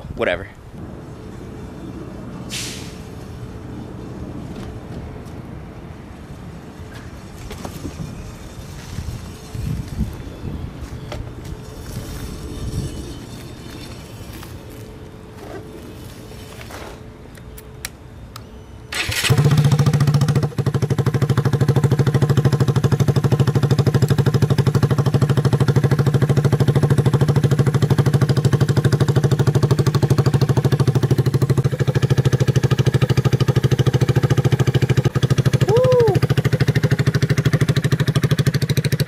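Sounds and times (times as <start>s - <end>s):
motorcycle engine starting and idling: 18.9s - 39.0s.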